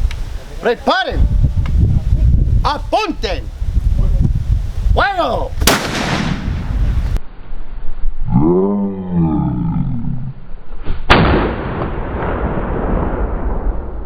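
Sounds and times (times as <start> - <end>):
gunshot boom: 5.6 - 7.2, 11.0 - 14.0
loud bang with rolling tail: 5.6 - 7.2, 11.1 - 14.0.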